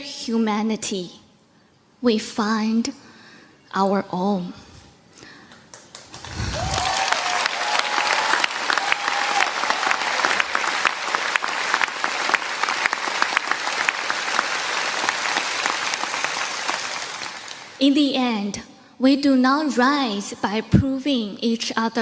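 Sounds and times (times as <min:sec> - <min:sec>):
audience applauding: 0:05.5 - 0:17.8.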